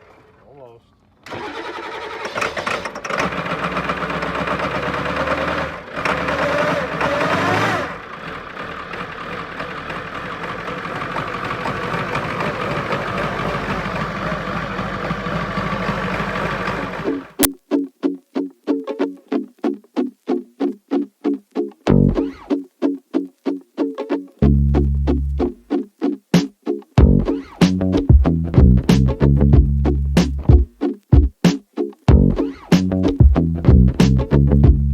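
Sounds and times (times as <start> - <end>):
pickup engine revving and idling: 3.1 - 17.3.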